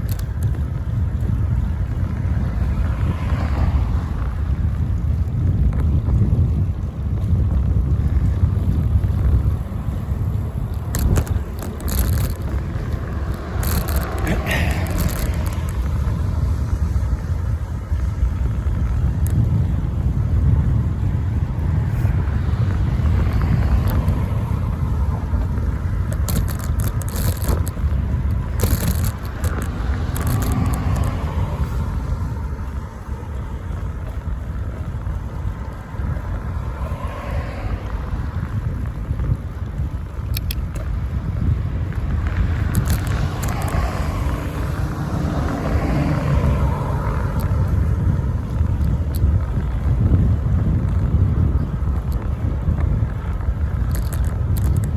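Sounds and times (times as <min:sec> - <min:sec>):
faint ticks: 0:00.0 - 0:01.4, 0:19.0 - 0:19.6, 0:32.7 - 0:54.9
wind and road vibration rumble: 0:00.0 - 0:54.9
car passing: 0:00.1 - 0:54.9
phone holder scraping and rattling: 0:10.9 - 0:12.6, 0:13.3 - 0:15.6, 0:26.2 - 0:27.8, 0:28.6 - 0:31.1.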